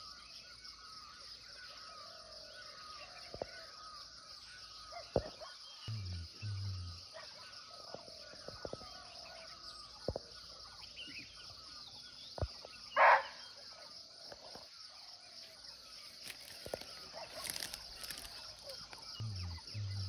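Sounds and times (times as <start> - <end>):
faint bird chirps: 0.0 - 20.0
insect chirring: 2.3 - 7.3, 14.3 - 20.0.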